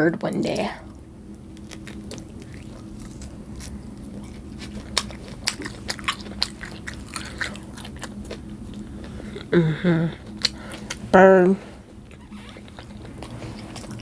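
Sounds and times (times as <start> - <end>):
faint steady hum: 0.0 - 14.0
person chewing food: 0.8 - 11.1, 11.7 - 14.0.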